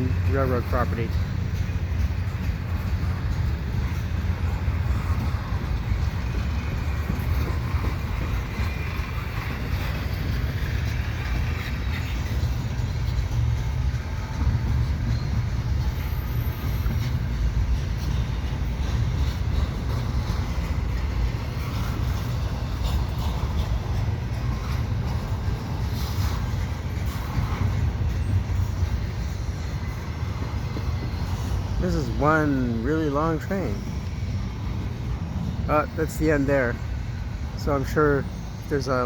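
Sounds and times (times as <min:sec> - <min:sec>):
freight train rumbling on rails: 0:00.0 - 0:39.0.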